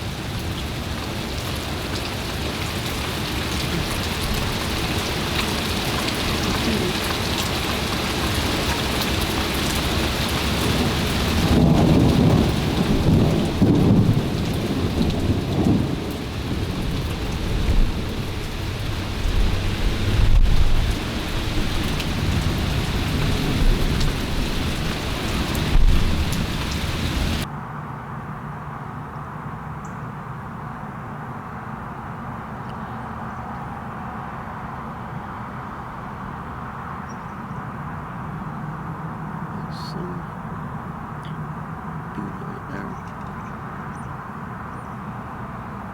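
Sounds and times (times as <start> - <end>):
heavy rain pouring: 0.0 - 27.5, 39.0 - 43.7
thunder rumbling: 9.9 - 27.5.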